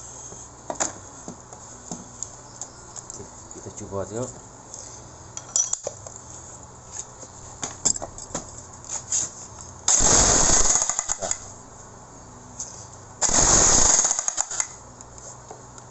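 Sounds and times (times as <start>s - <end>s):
electric demolition hammer: 9.9s - 11.4s, 13.2s - 14.8s.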